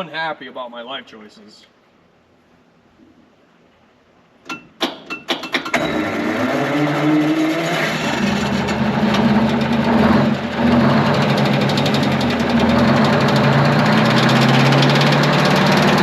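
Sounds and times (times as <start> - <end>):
diesel engine starting and running: 4.8 - 16.0.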